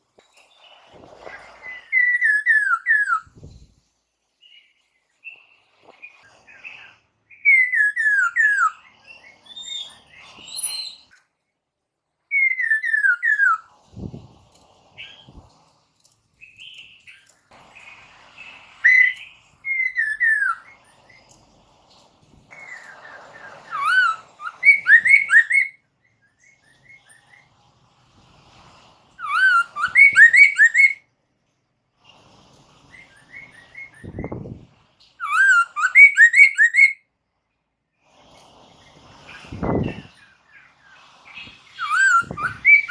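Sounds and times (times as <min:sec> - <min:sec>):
bird singing whistled notes: 0:01.6 - 0:03.6, 0:07.3 - 0:11.2, 0:12.3 - 0:14.2, 0:18.8 - 0:20.8, 0:22.6 - 0:27.2, 0:29.2 - 0:31.0, 0:35.2 - 0:37.0, 0:41.4 - 0:42.9.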